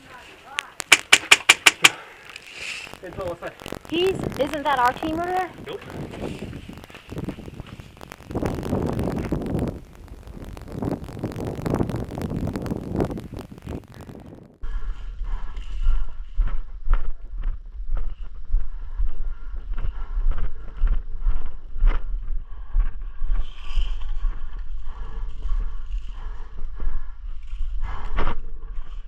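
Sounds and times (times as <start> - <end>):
irregular short clicks and knocks: 0.8 - 2.0
wind buffeting microphone: 3.0 - 29.0.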